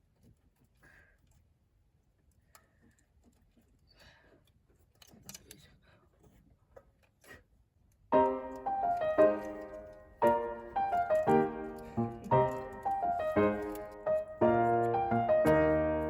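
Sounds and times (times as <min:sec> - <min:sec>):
faint clicks and knocks: 0:00.0 - 0:07.3, 0:07.9 - 0:16.0
piano music: 0:08.1 - 0:16.0.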